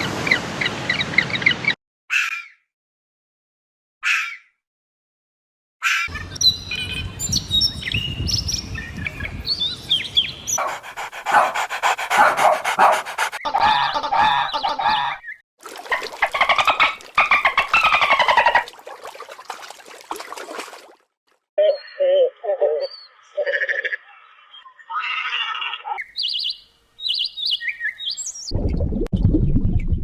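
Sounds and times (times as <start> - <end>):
rapidly pulsing animal calls: 10.6 - 15.2
high bird chirps: 24.3 - 28.5.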